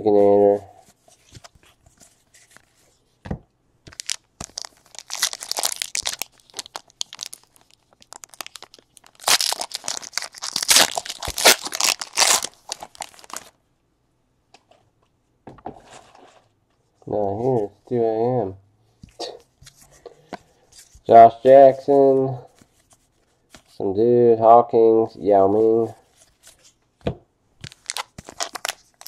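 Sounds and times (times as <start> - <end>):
card wrappers crinkling and tearing: 3.9 - 13.5, 27.6 - 29.0.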